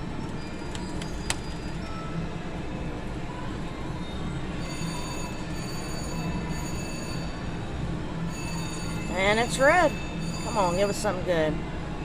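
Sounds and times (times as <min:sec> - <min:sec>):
slot machine chiming tones: 0:09.1 - 0:11.6.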